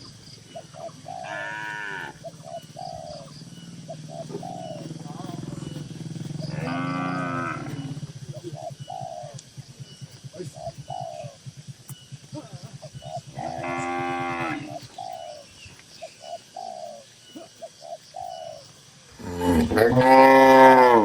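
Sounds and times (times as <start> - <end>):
higher animal calls: 0.0 - 11.6, 12.3 - 15.6, 16.2 - 21.0
cattle mooing loudly: 1.2 - 2.2, 6.4 - 8.0, 13.4 - 14.8, 19.2 - 21.0
low pulsing moo: 1.2 - 2.2, 5.2 - 8.1, 13.3 - 14.8, 19.2 - 21.0.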